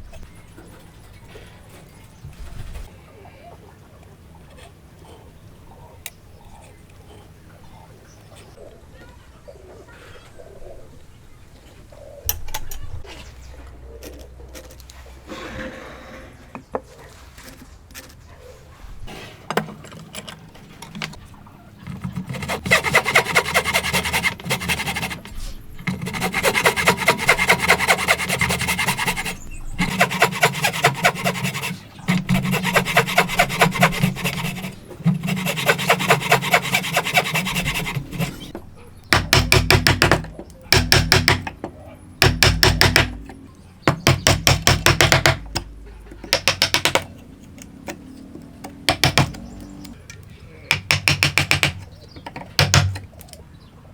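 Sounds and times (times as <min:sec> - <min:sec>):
handling sounds and knocks: 0:19.1 - 0:23.0, 0:23.6 - 0:53.4
hand tool scraping wood: 0:21.8 - 0:38.6, 0:42.2 - 0:43.3, 0:48.9 - 0:49.5, 0:50.7 - 0:51.9.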